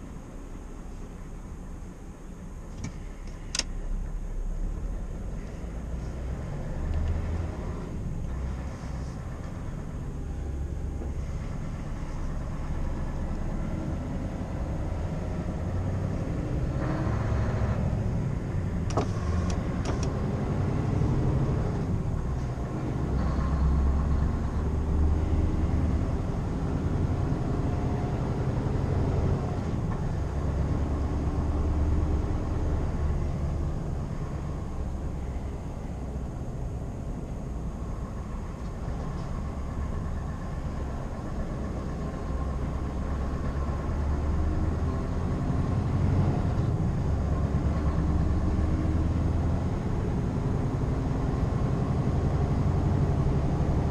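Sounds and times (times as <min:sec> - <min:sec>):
diesel engine low rumble: 0:00.0 - 0:53.9
sharp clicks: 0:02.7 - 0:03.8.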